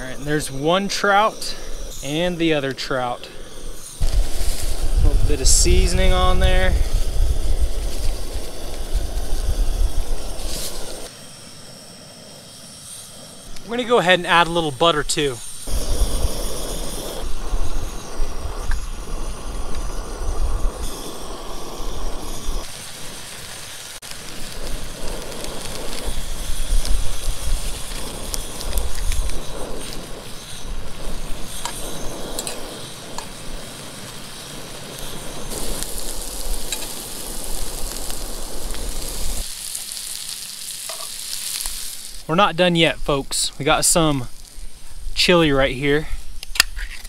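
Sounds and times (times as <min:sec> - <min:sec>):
wind on microphone: 0:00.0 - 0:11.1, 0:13.5 - 0:22.8, 0:24.2 - 0:39.5
gas burner hiss: 0:00.0 - 0:47.0
food frying in butter: 0:20.9 - 0:42.3.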